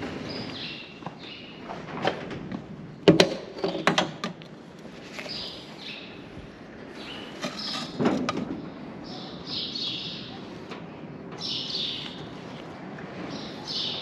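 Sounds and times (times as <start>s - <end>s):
birds chirping: 0.0s - 1.9s, 5.0s - 14.0s.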